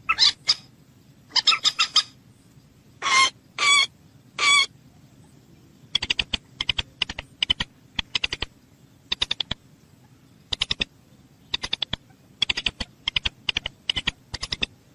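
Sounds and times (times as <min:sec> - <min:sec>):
bursts of rapid sharp clicks: 0:06.0 - 0:08.5, 0:10.5 - 0:10.9, 0:11.6 - 0:14.7.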